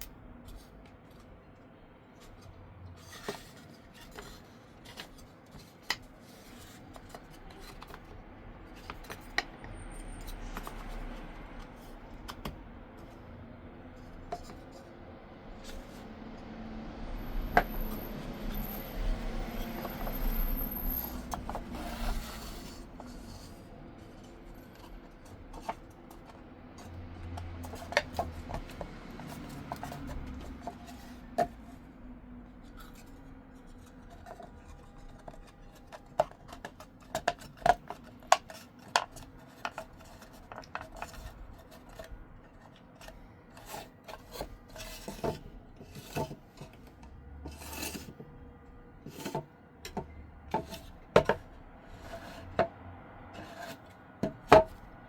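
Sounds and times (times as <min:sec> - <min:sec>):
tools scraping on wood: 0:02.2 - 0:08.2, 0:16.9 - 0:32.0, 0:32.6 - 0:48.3, 0:49.0 - 0:54.9.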